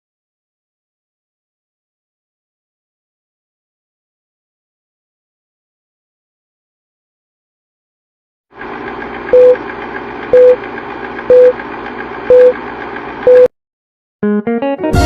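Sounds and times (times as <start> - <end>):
loud electronic beeps: 9.4 - 9.6, 10.4 - 10.6, 11.3 - 11.5, 12.3 - 12.6, 13.3 - 13.5.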